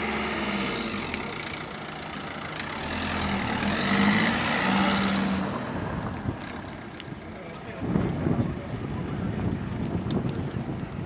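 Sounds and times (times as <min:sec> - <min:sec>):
car engine running: 0:00.0 - 0:07.4.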